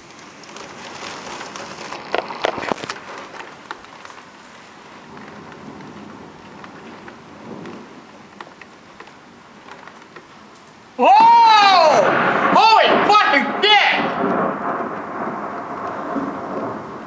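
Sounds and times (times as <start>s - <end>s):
burst of sharp cracks: 0.0s - 4.3s, 8.4s - 17.0s
rain striking window: 0.0s - 17.0s.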